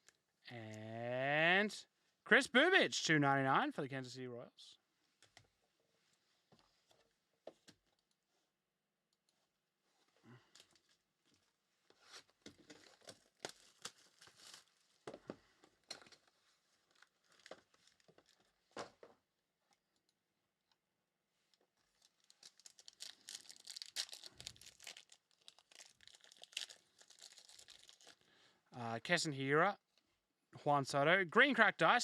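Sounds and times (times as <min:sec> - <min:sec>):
wrappers tearing and crinkling: 0:12.1 - 0:15.0, 0:16.0 - 0:18.6, 0:21.8 - 0:28.3.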